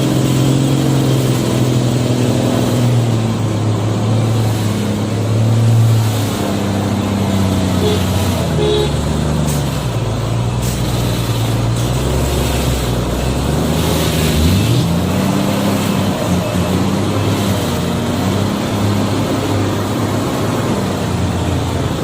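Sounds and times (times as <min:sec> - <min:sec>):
diesel truck engine revving: 0:00.0 - 0:22.0.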